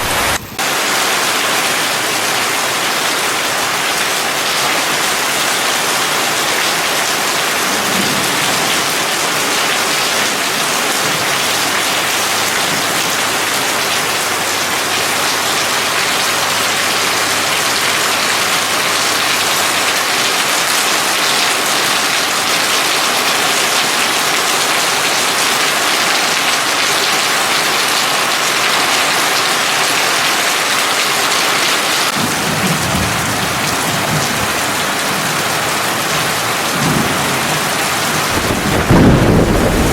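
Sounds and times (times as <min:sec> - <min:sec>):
heavy rain falling: 0:00.0 - 0:39.9
thunder rumble: 0:07.5 - 0:11.3, 0:36.8 - 0:39.9.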